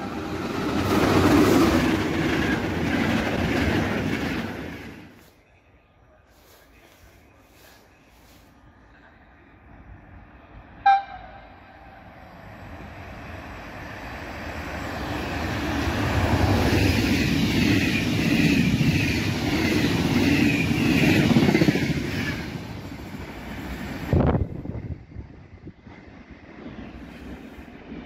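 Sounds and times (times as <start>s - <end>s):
train passing with wheel clatter: 0.0s - 28.0s
short loud high horn tone: 10.8s - 11.6s.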